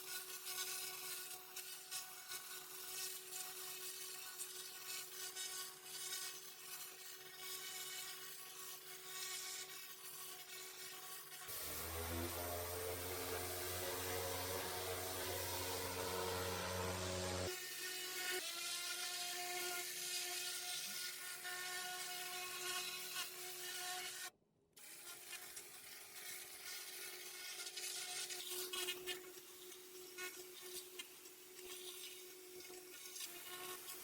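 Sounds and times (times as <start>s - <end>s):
water spray hiss: 11.5s - 17.5s
pressure washer whine: 11.5s - 17.6s.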